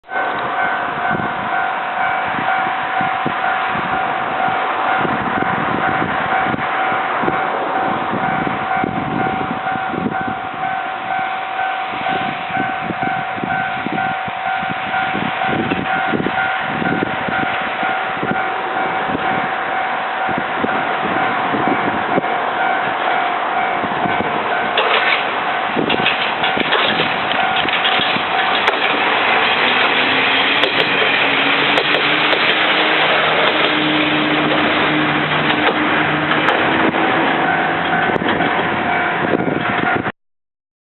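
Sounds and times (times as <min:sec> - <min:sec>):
diesel train rumbling rattle: 0:00.0 - 0:40.1
wheels clicking over rail joints: 0:21.6 - 0:40.1.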